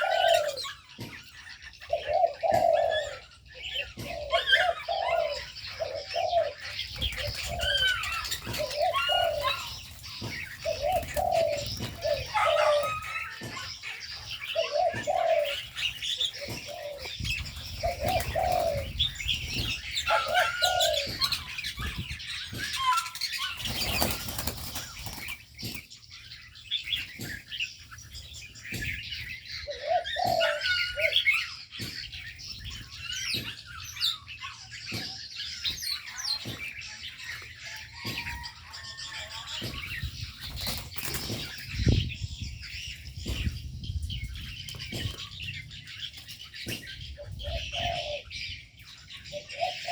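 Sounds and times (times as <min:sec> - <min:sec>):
doves cooing: 0:00.0 - 0:27.5, 0:28.1 - 0:49.9
small birds chirping: 0:00.0 - 0:49.9
wings flapping: 0:23.4 - 0:25.4.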